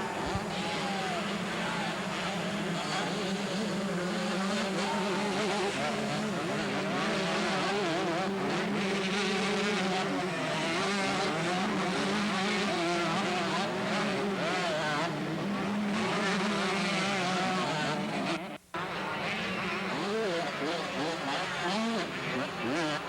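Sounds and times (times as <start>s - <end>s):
motocross bikes revving: 0.0s - 23.0s.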